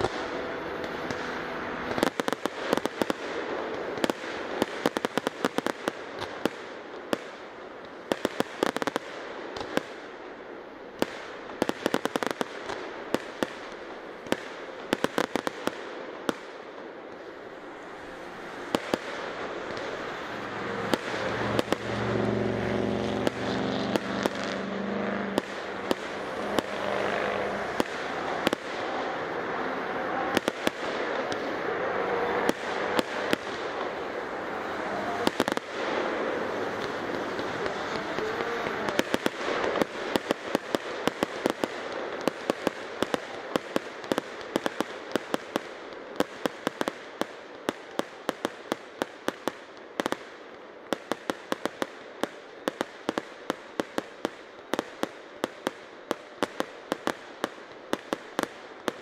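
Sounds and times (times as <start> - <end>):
low steady drone: 0.0 - 2.7, 16.6 - 39.6
background noise haze: 0.0 - 59.0
fireworks crackling pops: 0.0 - 59.0.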